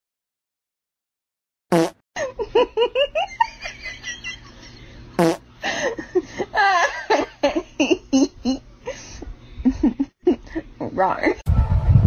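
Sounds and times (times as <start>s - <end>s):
comic fart sound effects: 1.7s - 2.0s, 5.2s - 5.4s
human laughter: 2.2s - 5.0s, 5.6s - 10.7s.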